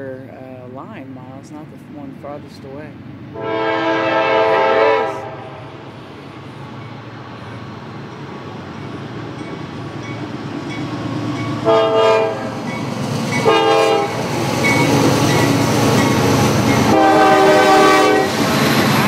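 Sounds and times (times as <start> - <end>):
diesel locomotive rumble: 0.0 - 19.0
train air horn blasts: 3.3 - 5.8, 11.6 - 12.5, 13.4 - 14.2, 16.9 - 18.4.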